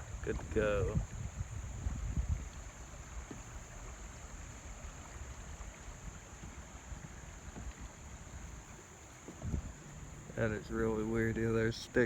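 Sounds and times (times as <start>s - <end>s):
wind rumbling on microphone: 0.0s - 12.0s
steady high hiss: 8.0s - 12.0s.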